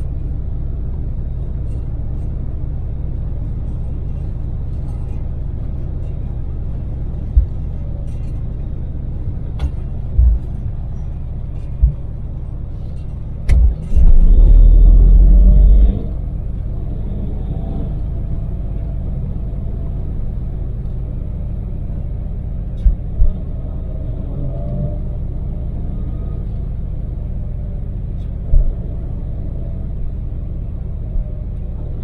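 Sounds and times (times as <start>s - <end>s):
road noise: 0.0s - 32.0s
van engine hum: 0.0s - 32.0s
loud low rumble: 4.3s - 32.0s
low thumps: 7.2s - 7.8s, 9.6s - 12.8s, 13.4s - 16.7s.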